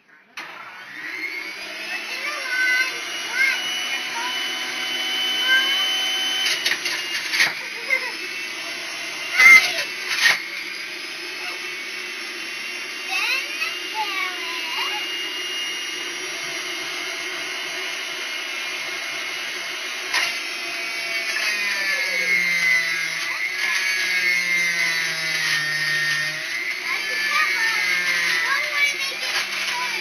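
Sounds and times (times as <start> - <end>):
small electric motor running: 0.6 - 30.0.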